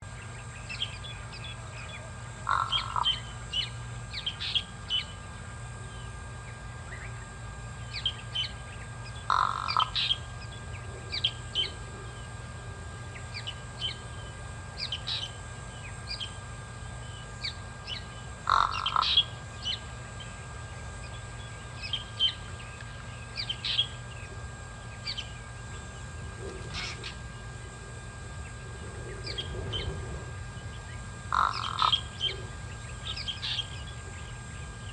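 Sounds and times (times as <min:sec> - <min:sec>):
small birds chirping: 0:00.0 - 0:12.5, 0:13.1 - 0:34.9
low electrical hum: 0:00.0 - 0:34.9
crow cawing: 0:02.4 - 0:03.3, 0:09.3 - 0:10.2, 0:18.4 - 0:19.3, 0:31.3 - 0:32.3.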